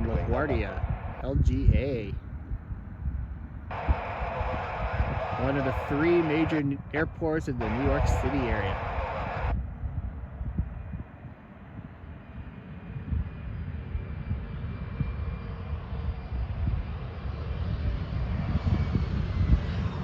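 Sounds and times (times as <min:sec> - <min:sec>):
distant jet engines rumbling: 0:00.0 - 0:09.6.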